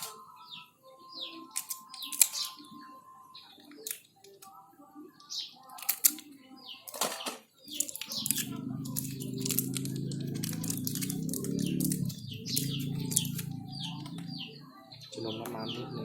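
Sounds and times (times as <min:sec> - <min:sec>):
small birds chirping: 0:00.0 - 0:16.0
metal parts clicking: 0:01.5 - 0:02.6, 0:03.7 - 0:04.5, 0:05.7 - 0:06.3, 0:06.9 - 0:14.2.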